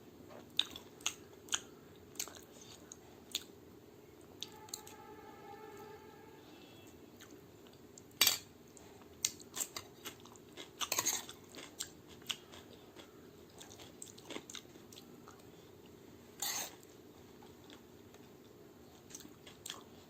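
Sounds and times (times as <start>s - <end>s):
crunchy chewing: 7.2s - 20.0s.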